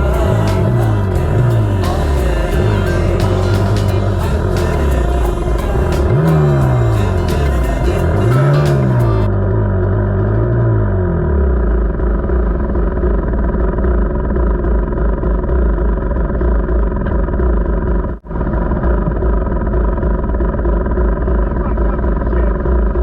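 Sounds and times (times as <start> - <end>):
dirt bike engine running: 0.0 - 23.0.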